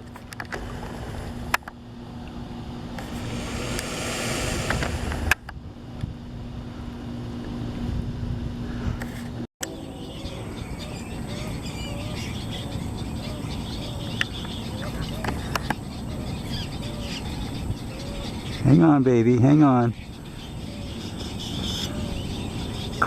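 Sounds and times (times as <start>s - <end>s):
high steady whine: 3.0s - 6.4s
rushing noise: 3.0s - 6.4s
steady low hum: 3.0s - 6.4s.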